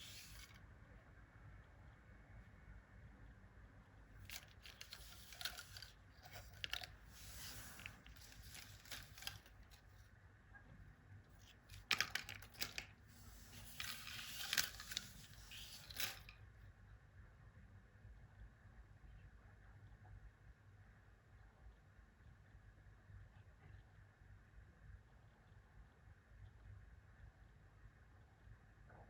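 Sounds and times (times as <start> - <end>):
clicks and crinkles of handling: 0.0 - 0.6, 4.2 - 10.1, 11.2 - 16.4.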